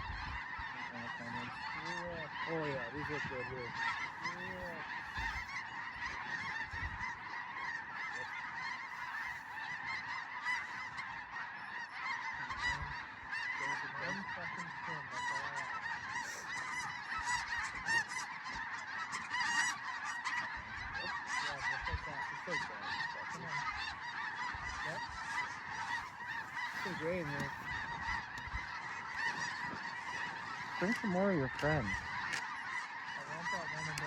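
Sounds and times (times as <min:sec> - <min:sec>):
flock of geese honking: 0:00.0 - 0:34.0.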